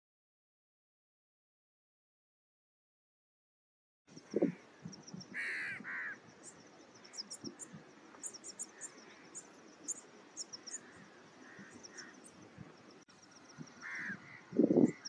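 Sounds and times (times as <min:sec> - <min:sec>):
harsh caw-like bird calls: 0:05.3 - 0:06.3, 0:08.6 - 0:09.5, 0:10.4 - 0:12.4, 0:13.6 - 0:15.0.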